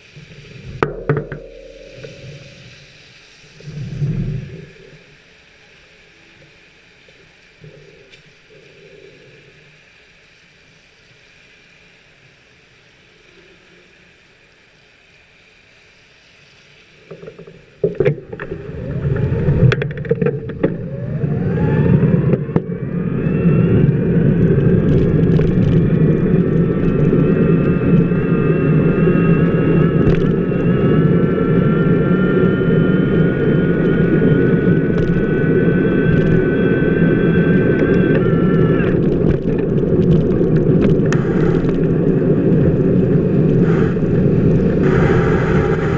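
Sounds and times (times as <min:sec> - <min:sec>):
wheel whine: 0:00.0 - 0:45.9
tyre rolling on wet pavement: 0:17.5 - 0:20.9, 0:34.1 - 0:45.9.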